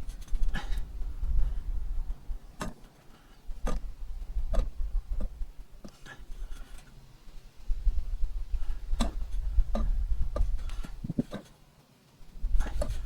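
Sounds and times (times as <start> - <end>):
low rumble: 0.0 - 2.6.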